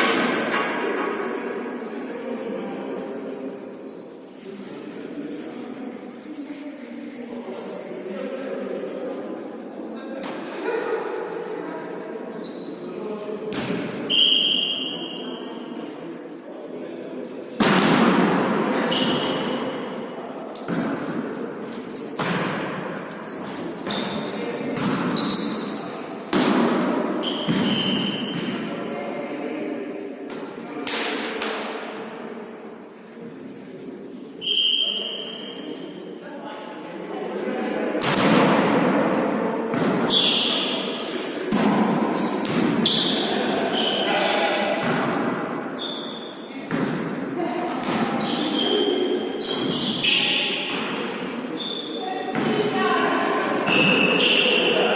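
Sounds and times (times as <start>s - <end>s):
sneaker squeaks: 12.3s - 15.6s, 18.8s - 19.8s, 21.8s - 26.3s, 27.2s - 28.6s, 34.4s - 36.0s, 39.9s - 46.7s, 47.8s - 52.8s, 53.6s - 54.9s
volleyball smacks echoing: 41.5s - 43.2s, 44.7s - 45.5s.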